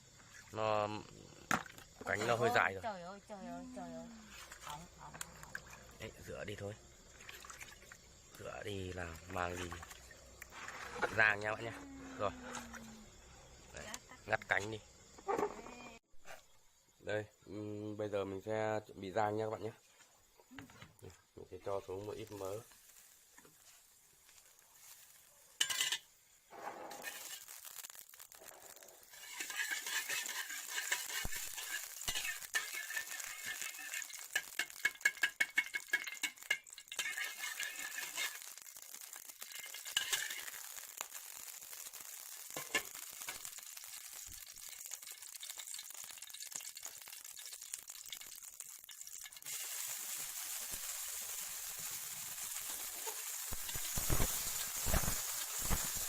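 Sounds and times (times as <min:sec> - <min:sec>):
fat sizzling in a frying pan: 0:00.0 - 0:16.1, 0:19.2 - 0:56.0
clinks and scrapes of stirring: 0:25.6 - 0:27.7, 0:28.4 - 0:40.8, 0:42.4 - 0:43.5, 0:52.7 - 0:55.9.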